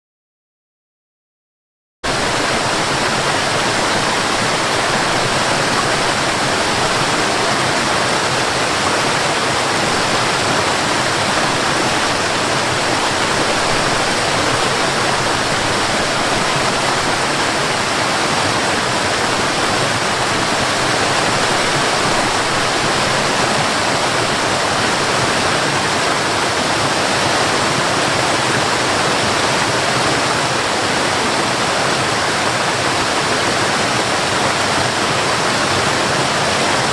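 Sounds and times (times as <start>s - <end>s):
waterfall roaring: 2.1s - 36.9s.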